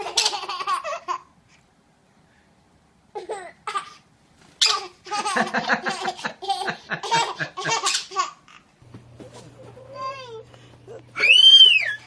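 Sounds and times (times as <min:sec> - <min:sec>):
high-pitched laughing squeals: 0:09.2 - 0:12.0.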